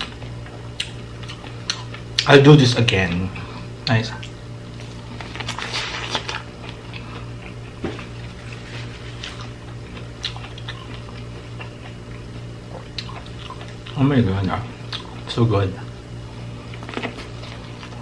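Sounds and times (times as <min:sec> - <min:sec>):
person chewing: 0:00.0 - 0:02.3, 0:04.2 - 0:14.0, 0:14.8 - 0:15.3, 0:16.5 - 0:18.0
steady low hum: 0:00.0 - 0:18.0.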